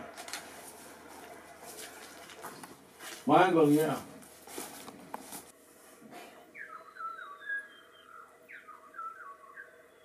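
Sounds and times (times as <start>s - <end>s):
bird singing whistled phrases: 6.6s - 10.0s.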